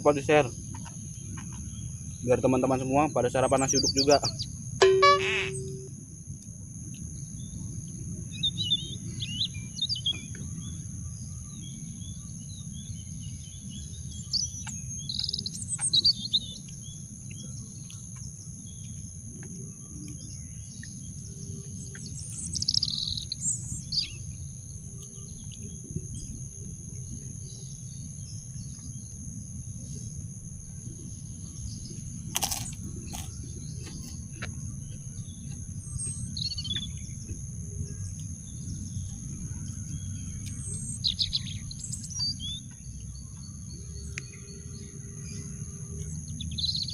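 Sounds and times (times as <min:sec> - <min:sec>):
birds chirping: 0:00.0 - 0:05.9, 0:07.0 - 0:29.2, 0:30.9 - 0:46.9
high-pitched whine: 0:04.8 - 0:06.0.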